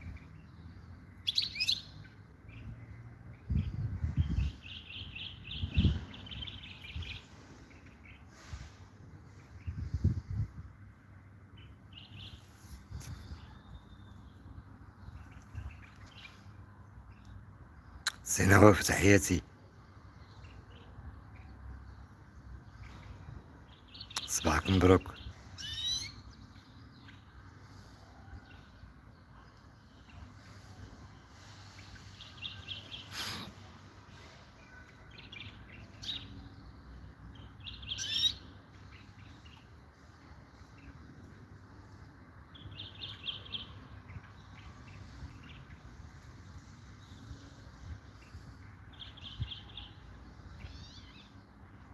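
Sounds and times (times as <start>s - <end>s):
finch chirps: 0.0s - 10.1s, 22.6s - 28.7s, 29.3s - 41.4s, 42.5s - 51.6s
goldfinch twittering chirps: 37.3s - 40.1s.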